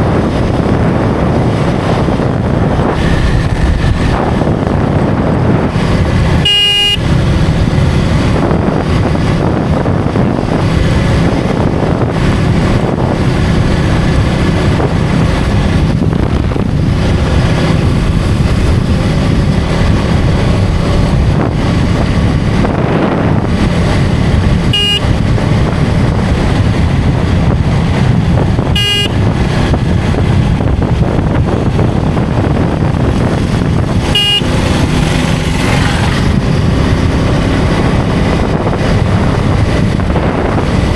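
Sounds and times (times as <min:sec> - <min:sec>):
motorcycle engine running: 0:00.0 - 0:40.9
wind and road noise: 0:00.0 - 0:40.9
vehicle horn beeps: 0:06.4 - 0:07.2, 0:24.6 - 0:25.3, 0:28.7 - 0:29.3, 0:34.0 - 0:34.7.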